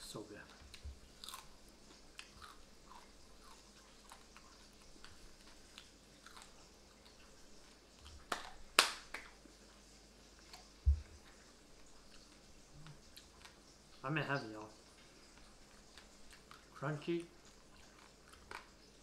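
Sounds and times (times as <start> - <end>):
chewing crunchy fried fish: 0.1 - 19.0
dull low thump: 10.9 - 11.1.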